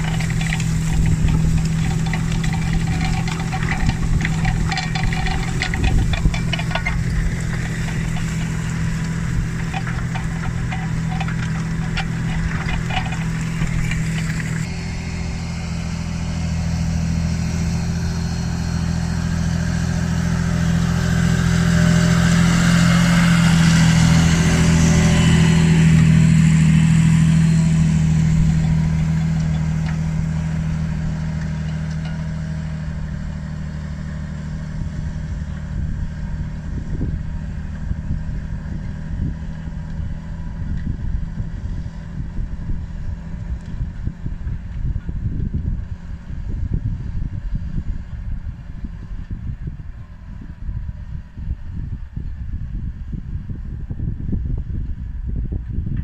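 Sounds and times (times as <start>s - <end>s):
rapid clicking: 0.0s - 14.7s
tractor diesel engine under load: 0.0s - 54.8s.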